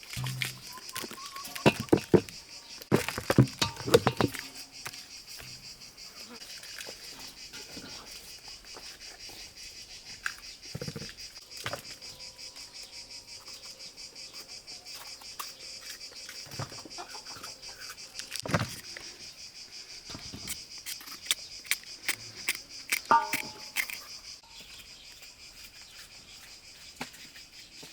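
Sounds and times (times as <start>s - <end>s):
handling knocks and clatters: 0.0s - 5.9s, 22.5s - 24.2s
crickets chirping: 0.0s - 27.9s.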